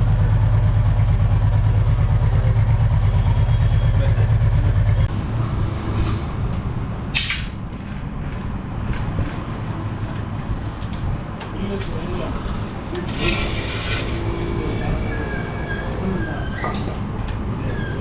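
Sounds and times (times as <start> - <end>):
motorcycle engine idling: 0.0 - 5.1.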